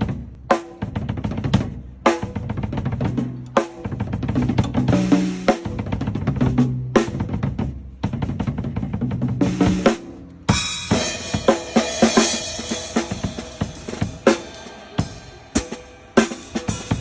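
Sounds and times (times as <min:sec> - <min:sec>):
drum fills: 0:09.4 - 0:17.0
crash cymbal hit: 0:10.7 - 0:17.0.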